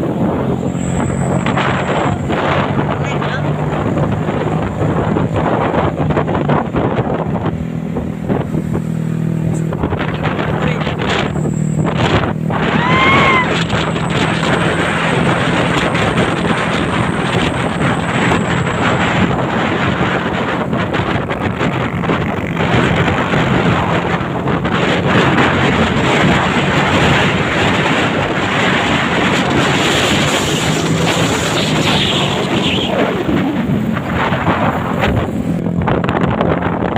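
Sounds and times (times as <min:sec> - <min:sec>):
truck engine humming: 0:00.0 - 0:36.9
wind buffeting microphone: 0:00.0 - 0:36.9.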